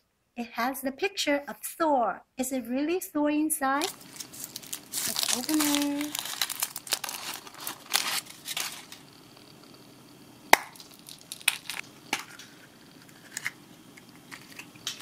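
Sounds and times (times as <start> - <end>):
wrapper crinkling: 3.8 - 9.6, 10.5 - 15.0
plastic egg clicks and snaps: 10.5 - 15.0.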